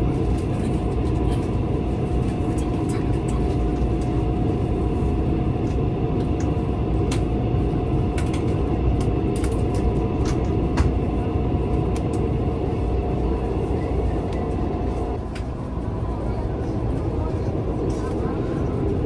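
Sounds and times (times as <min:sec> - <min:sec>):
train rumbling inside carriage: 0:00.0 - 0:19.0.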